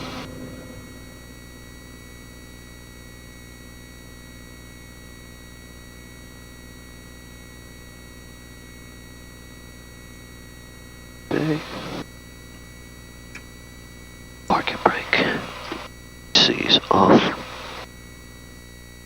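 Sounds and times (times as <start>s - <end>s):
aircraft piston engine droning: 0.0s - 2.2s, 11.3s - 12.0s, 14.5s - 17.8s
steady high tones: 0.0s - 2.3s.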